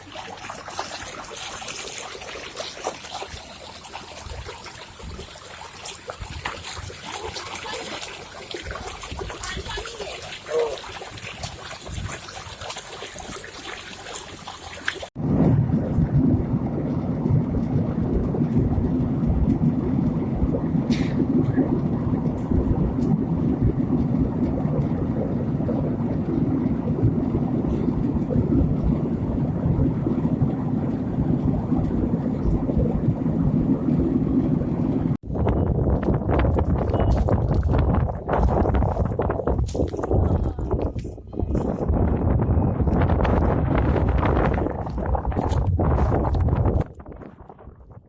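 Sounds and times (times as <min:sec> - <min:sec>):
rushing mountain water: 0:00.0 - 0:15.2
water trickling: 0:00.0 - 0:15.2.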